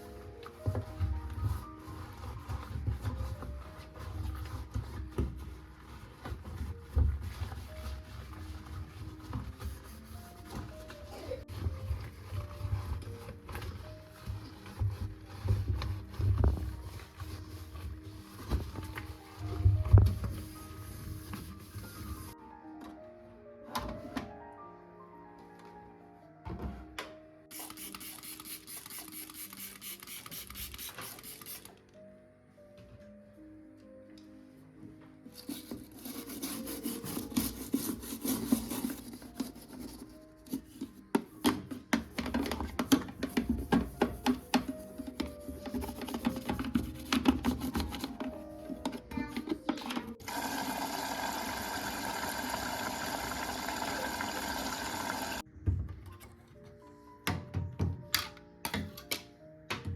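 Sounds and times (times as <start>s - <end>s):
soft background music: 0.0s - 59.9s
scratchy rasping noise: 35.5s - 40.2s
water running: 50.2s - 55.4s.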